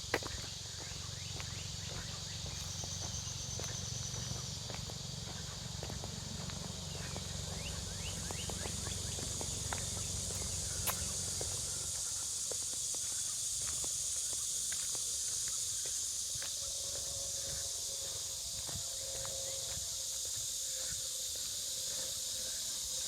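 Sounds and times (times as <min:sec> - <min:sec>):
footsteps on walking path: 0:00.0 - 0:23.0
high insect drone: 0:00.0 - 0:23.0
bird chirps: 0:06.4 - 0:11.9.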